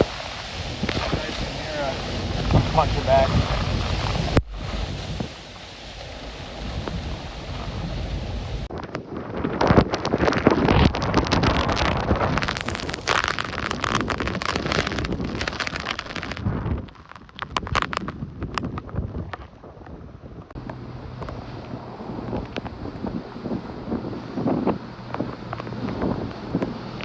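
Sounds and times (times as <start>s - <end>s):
strong wind buffeting microphone: 0.0s - 27.0s.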